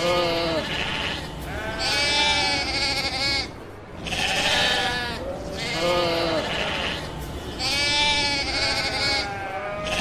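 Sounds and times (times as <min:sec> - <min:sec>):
sheep bleating: 0:00.0 - 0:10.0.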